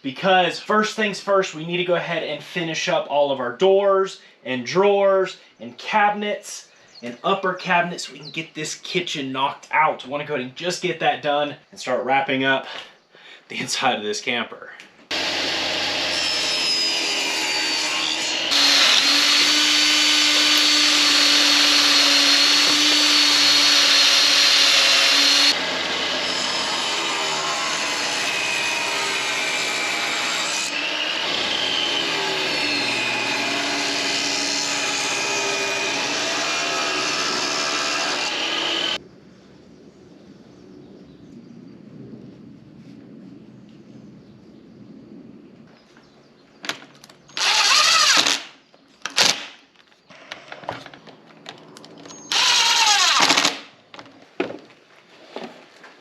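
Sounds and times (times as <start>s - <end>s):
power saw cutting wood: 15.1s - 39.0s, 47.4s - 48.5s, 52.3s - 53.6s.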